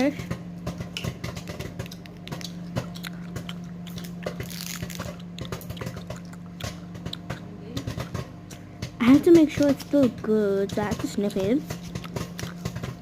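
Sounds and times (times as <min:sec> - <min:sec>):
plastic packet crinkling: 0:01.9 - 0:06.3.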